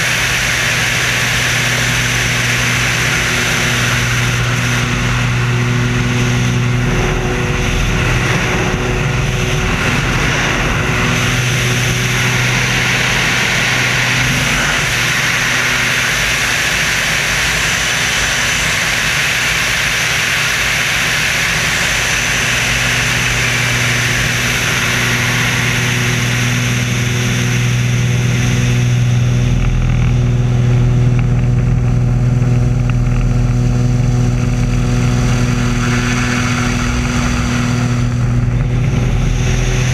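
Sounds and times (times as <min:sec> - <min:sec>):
biplane engine droning: 0:00.0 - 0:39.9
wind rushing: 0:01.1 - 0:17.4.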